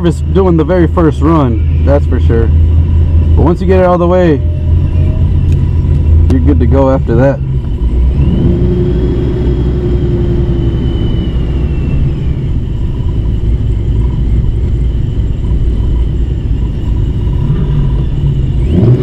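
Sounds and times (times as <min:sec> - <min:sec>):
car engine rumbling: 0:00.0 - 0:19.0
faint high whine: 0:00.0 - 0:19.0.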